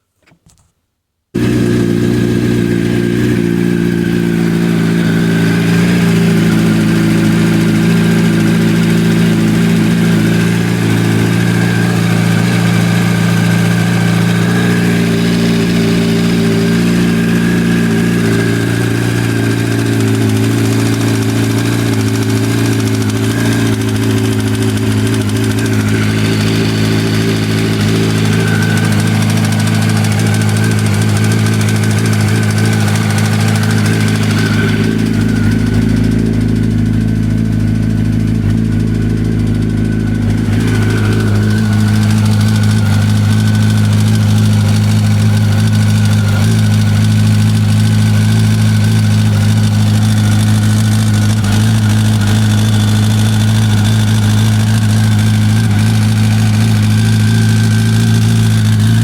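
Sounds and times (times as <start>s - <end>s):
motorcycle engine idling with knock: 1.4s - 59.0s.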